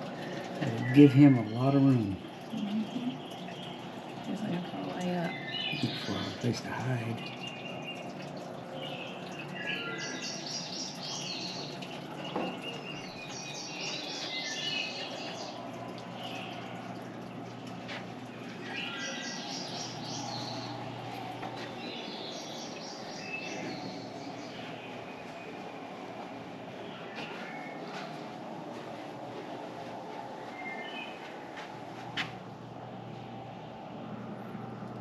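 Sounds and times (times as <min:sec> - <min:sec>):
birds singing: 0:00.0 - 0:32.5
steady low hum: 0:00.0 - 0:35.0.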